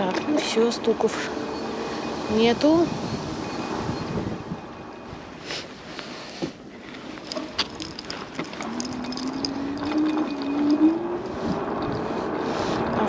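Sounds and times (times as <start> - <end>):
electric scooter motor whine: 0.1 - 5.4
tyre and wind noise: 1.1 - 13.0.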